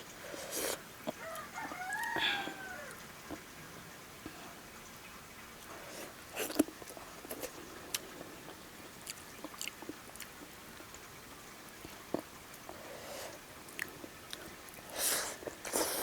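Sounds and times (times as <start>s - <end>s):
chewing meat: 0.5s - 3.5s, 5.6s - 11.1s, 11.7s - 12.9s, 13.7s - 16.0s.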